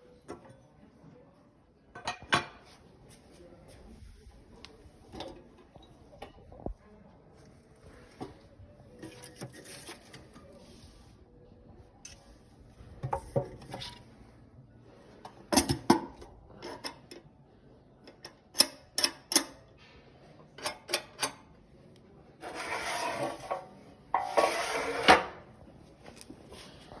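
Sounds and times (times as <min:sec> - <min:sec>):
metal scraping slides: 0:22.4 - 0:25.4.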